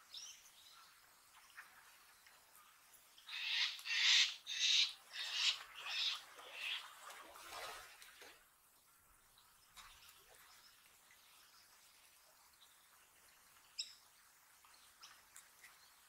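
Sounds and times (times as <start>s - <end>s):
bird making harsh scratchy calls: 3.4s - 6.1s.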